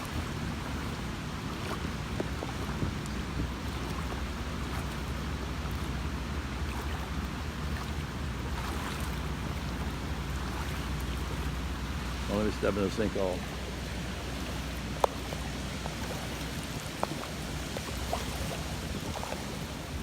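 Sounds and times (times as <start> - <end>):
rushing floodwater: 0.0 - 20.0
storm wind: 13.5 - 20.0.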